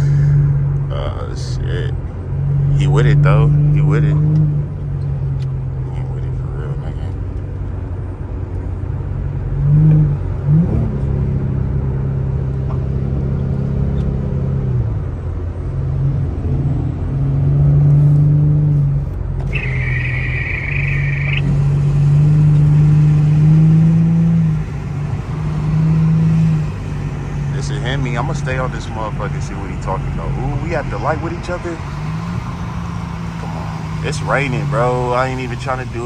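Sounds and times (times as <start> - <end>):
car engine revving: 0.0 - 36.0
high steady tone: 19.4 - 35.5.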